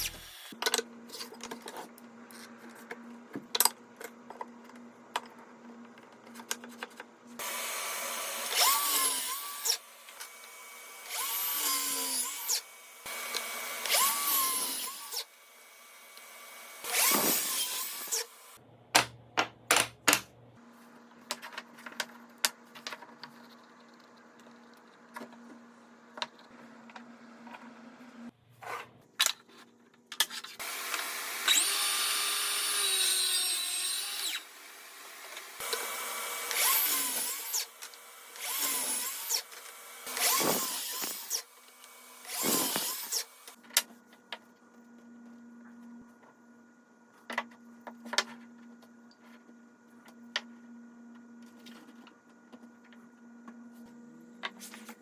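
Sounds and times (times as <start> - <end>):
power drill motor whirring: 7.4 - 15.2, 16.0 - 18.6, 30.6 - 43.6.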